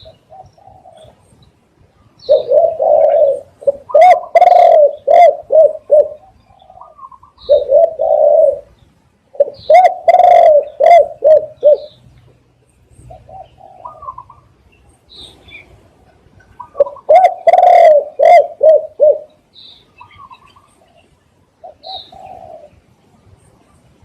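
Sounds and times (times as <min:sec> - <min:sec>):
dove cooing: 0:00.0 - 0:01.3, 0:02.2 - 0:12.0, 0:13.0 - 0:14.6, 0:16.2 - 0:19.4, 0:21.6 - 0:22.8.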